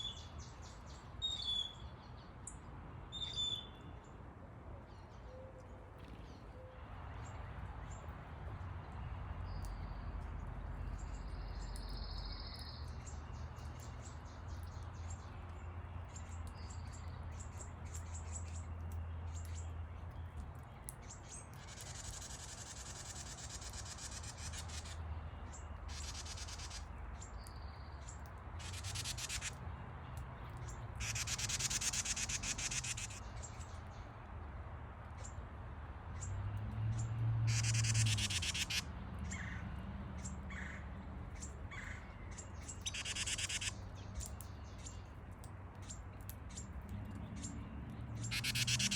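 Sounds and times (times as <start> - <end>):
buzzy bird trills: 21.7 - 25.0, 25.9 - 26.9, 28.6 - 29.6, 31.0 - 33.6, 37.5 - 38.8, 42.8 - 43.8, 48.2 - 48.9.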